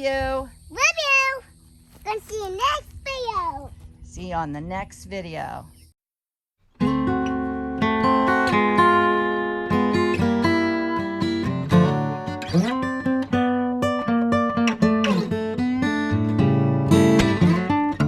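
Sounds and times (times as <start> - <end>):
acoustic guitar music: 6.6 - 18.0.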